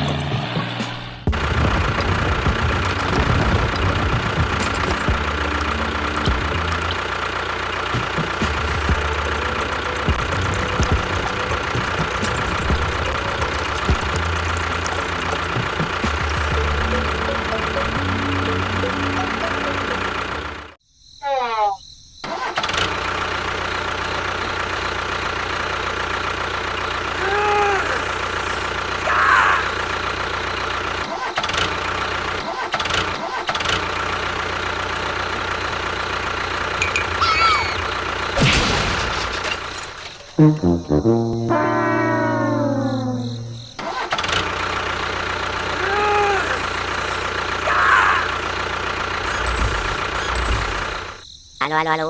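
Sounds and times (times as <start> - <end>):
music: 0.0 - 7.1, 8.0 - 20.8, 40.4 - 43.7
small motor humming: 1.3 - 20.7, 48.3 - 51.2
engine running steadily: 1.3 - 20.8, 44.5 - 51.2
rising and falling tone: 7.9 - 20.8, 40.4 - 43.8
short tone: 40.4 - 43.8.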